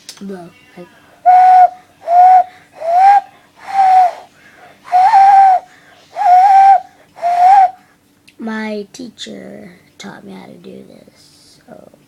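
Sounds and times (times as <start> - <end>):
hand-cupped owl hoots: 1.3 - 4.3, 4.9 - 7.8.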